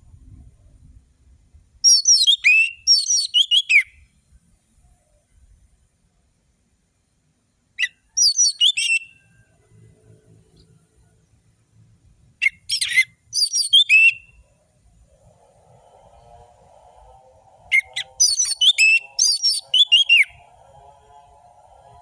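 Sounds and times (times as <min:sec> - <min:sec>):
thrush whistling song: 0:01.8 - 0:04.0, 0:07.8 - 0:09.4, 0:12.4 - 0:14.5, 0:15.1 - 0:22.0.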